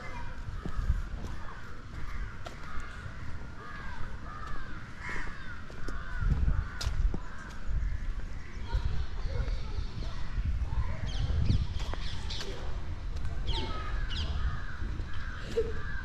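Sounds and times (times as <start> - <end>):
crow-like caws: 0.0 - 8.1, 13.7 - 16.0
birds calling: 0.0 - 12.8, 13.4 - 16.0.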